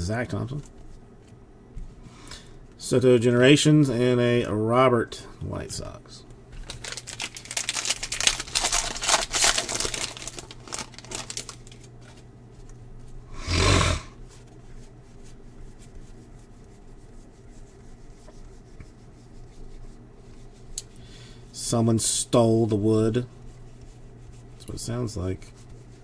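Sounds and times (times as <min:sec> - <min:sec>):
wrapper tearing: 0:06.6 - 0:12.0
wrapper crinkling: 0:06.6 - 0:12.3
cards being handled: 0:06.6 - 0:12.8.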